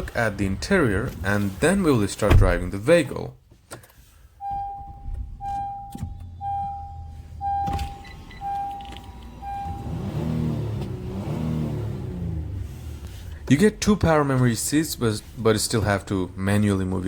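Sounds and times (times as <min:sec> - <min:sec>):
car warning chime beeping: 0:04.4 - 0:11.3.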